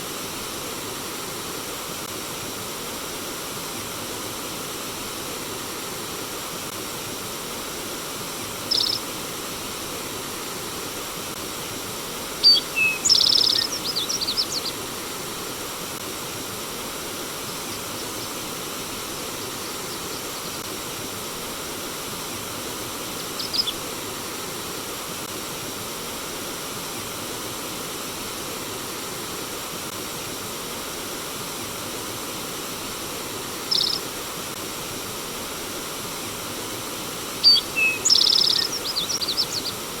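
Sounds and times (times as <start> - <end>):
stream water rushing: 0.0 - 40.0
high bird chirps: 8.7 - 9.0, 12.4 - 14.8, 23.4 - 23.8, 33.7 - 34.0, 37.4 - 39.8.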